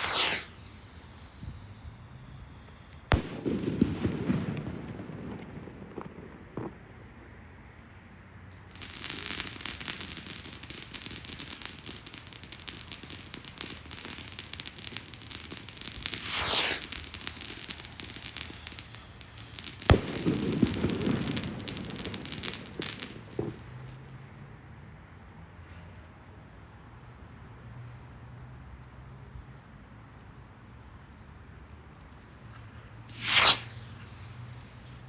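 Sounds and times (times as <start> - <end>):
firework bang: 0.0 - 6.8, 16.0 - 24.0, 33.1 - 35.0
fireworks crackling: 0.0 - 7.1, 8.5 - 24.6, 32.9 - 35.0.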